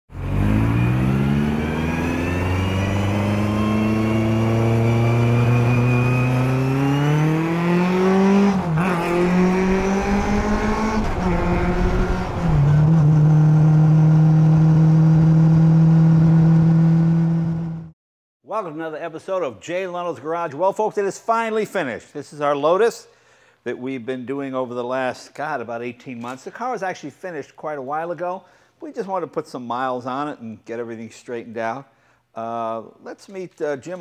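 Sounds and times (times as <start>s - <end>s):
car engine accelerating: 0.1s - 17.9s.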